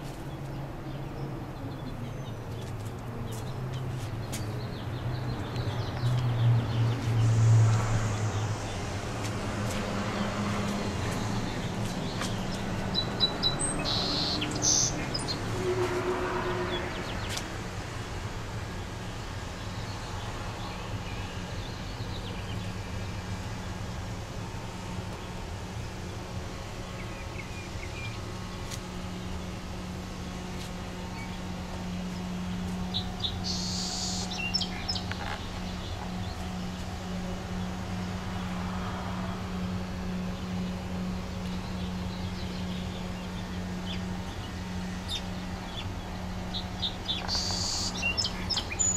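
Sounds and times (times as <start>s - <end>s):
steady low hum: 0.0s - 48.9s
birds chirping: 8.0s - 17.5s, 25.1s - 38.5s, 39.5s - 48.9s.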